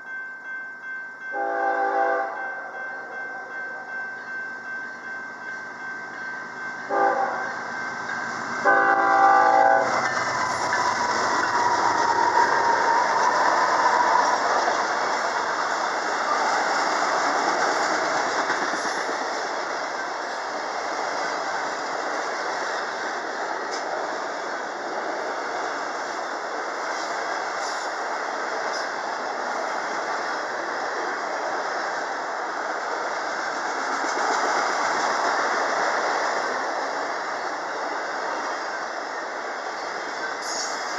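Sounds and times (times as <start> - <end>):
locomotive air horn: 1.4 - 2.7, 6.9 - 7.5, 8.6 - 10.1
train wheels rushing on rail: 6.4 - 40.9.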